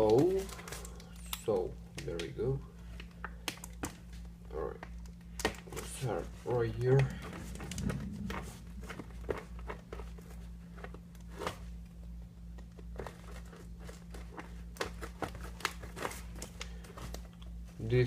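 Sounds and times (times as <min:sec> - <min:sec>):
low electrical hum: 0:00.0 - 0:18.0
packaging crinkling and tearing: 0:13.0 - 0:17.4.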